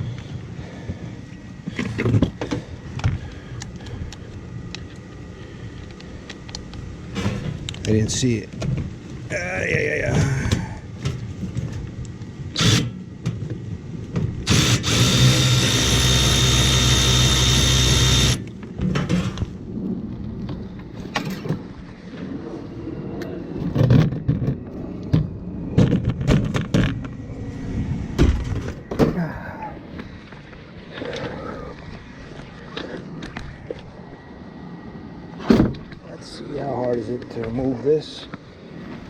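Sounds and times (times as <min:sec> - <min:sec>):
cordless drill running: 0:12.6 - 0:12.9, 0:14.4 - 0:18.4.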